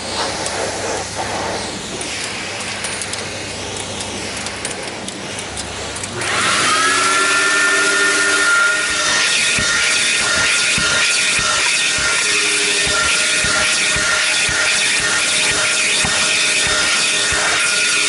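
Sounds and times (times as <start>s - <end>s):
steady hissing noise: 0.0s - 6.2s
vacuum motor whining: 6.1s - 18.0s.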